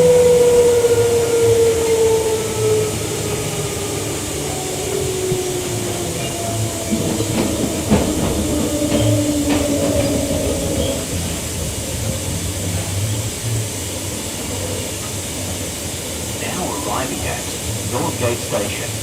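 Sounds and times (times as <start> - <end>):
electric train motor whine: 0.0 - 13.7
wheels clacking over rail joints: 4.5 - 13.5.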